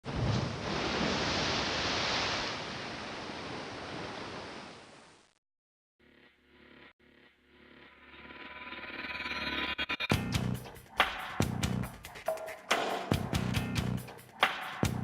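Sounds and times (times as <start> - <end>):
sea waves and surf: 0.0 - 5.2.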